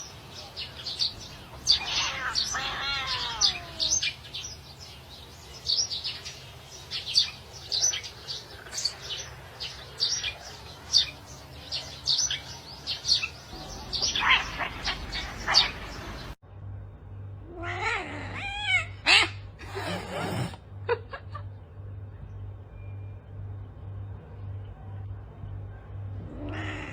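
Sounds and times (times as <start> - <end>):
cat meowing: 1.6 - 4.1, 17.5 - 19.4, 26.3 - 26.9.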